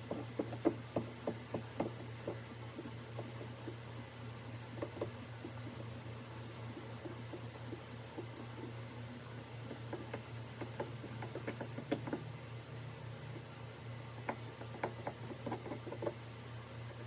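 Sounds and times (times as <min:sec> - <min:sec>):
steady low hum: 0:00.0 - 0:17.0
light taps and clicks: 0:09.7 - 0:12.2.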